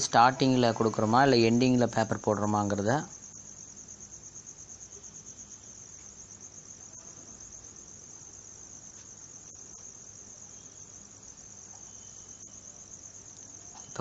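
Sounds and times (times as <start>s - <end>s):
faint low hum: 0.0s - 14.0s
insect trilling: 0.0s - 14.0s
faint clicks: 13.3s - 13.9s.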